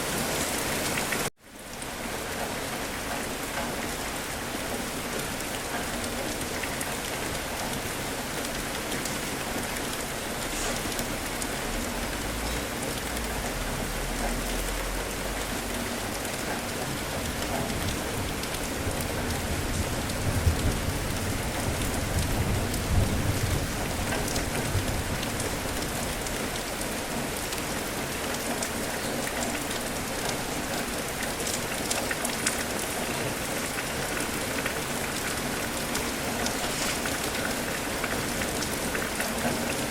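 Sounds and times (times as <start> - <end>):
rain pattering: 0.0 - 39.9
distant thunder rumbles: 17.2 - 25.5.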